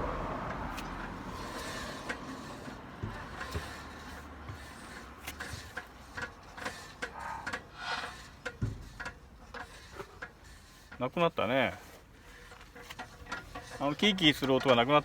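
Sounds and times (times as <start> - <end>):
wheel hub spinning: 0.0 - 15.0
light clicks and knocks: 12.3 - 15.0.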